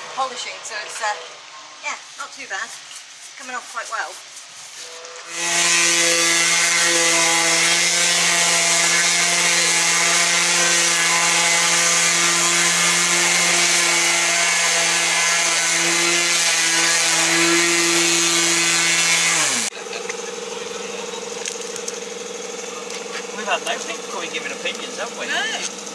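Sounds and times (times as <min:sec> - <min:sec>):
power polisher motor whine: 0:05.2 - 0:25.9.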